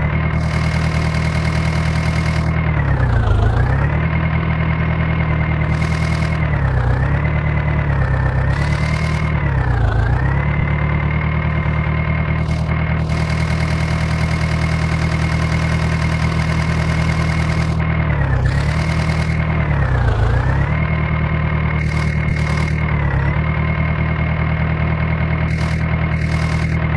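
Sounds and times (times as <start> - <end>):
diesel engine at high revs: 0.0 - 26.9.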